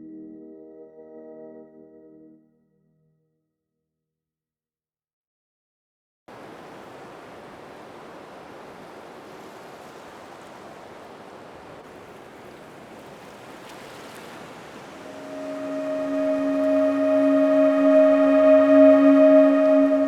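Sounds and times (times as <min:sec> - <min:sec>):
waterfall rushing: 0:06.3 - 0:12.9, 0:14.5 - 0:20.0.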